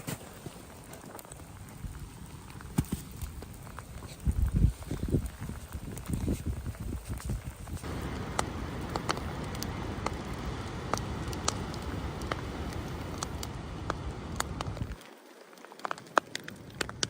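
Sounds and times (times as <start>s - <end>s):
sharp crackles and ticks: 0.1s - 17.0s
steady low rushing noise: 7.8s - 15.0s.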